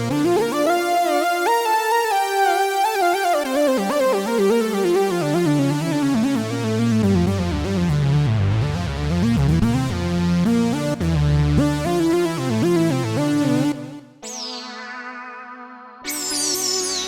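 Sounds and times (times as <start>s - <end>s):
synthesizer chords: 0.0s - 17.0s
low synth bass line: 5.8s - 14.0s.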